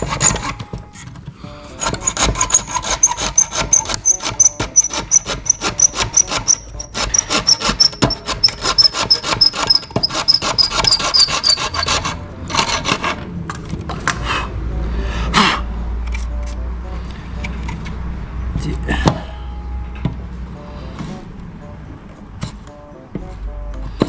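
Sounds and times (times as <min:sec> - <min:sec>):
hand file rasping on hard plastic: 0:01.8 - 0:13.2
sharp scrape: 0:01.8 - 0:18.0.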